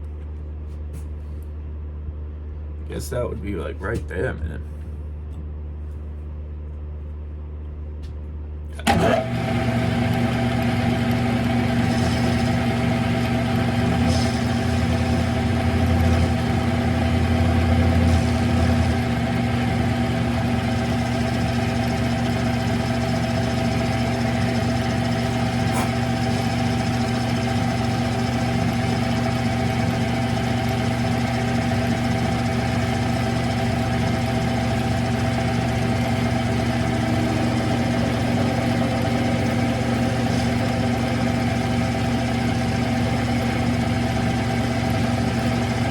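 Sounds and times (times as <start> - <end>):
lathe motor running with whine: 8.8 - 45.9
low hum: 9.8 - 45.9.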